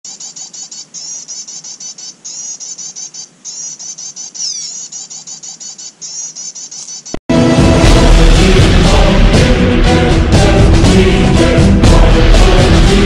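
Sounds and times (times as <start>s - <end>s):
bird chirping: 0.0s - 7.2s.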